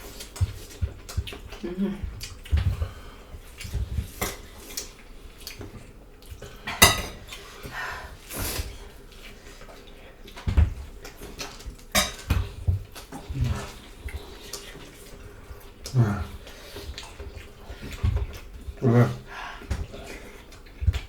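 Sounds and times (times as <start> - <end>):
cutlery clinking on plates: 6.7 - 7.4, 11.5 - 12.6.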